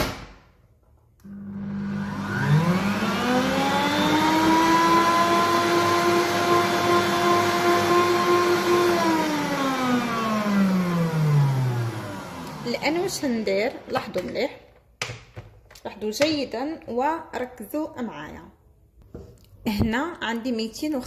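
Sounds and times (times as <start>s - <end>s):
stand mixer motor whining: 1.2s - 13.6s.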